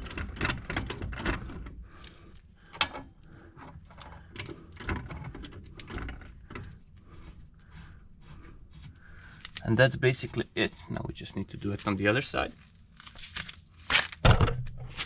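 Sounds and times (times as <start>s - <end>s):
metallic clicks and clunks: 0.0s - 6.9s, 14.2s - 15.0s.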